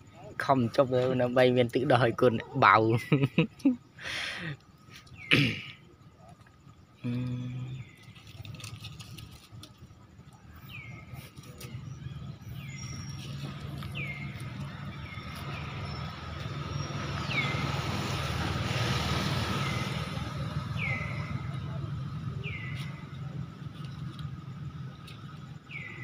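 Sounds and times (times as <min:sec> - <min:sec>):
low steady rumble: 0:06.1 - 0:26.0.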